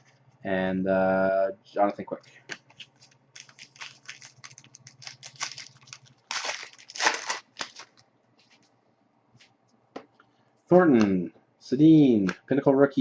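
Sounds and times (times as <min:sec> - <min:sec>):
foil wrapper crinkling and tearing: 0:02.8 - 0:08.0.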